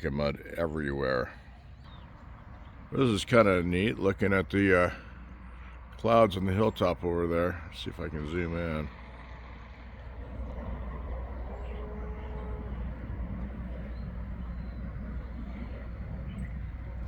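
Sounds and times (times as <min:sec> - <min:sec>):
low outdoor rumble: 0:00.0 - 0:17.0
faint humming tone: 0:10.0 - 0:17.0.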